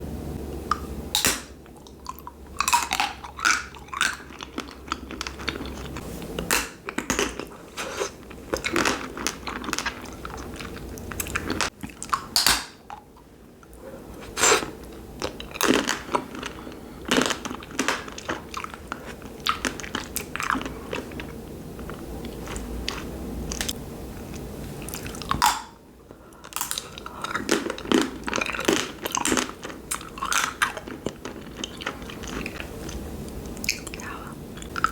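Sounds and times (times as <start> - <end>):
chewing close to microphone: 1.6 - 12.3, 13.7 - 25.5, 26.4 - 34.9
wax candy crunching and cracking: 14.9 - 21.3.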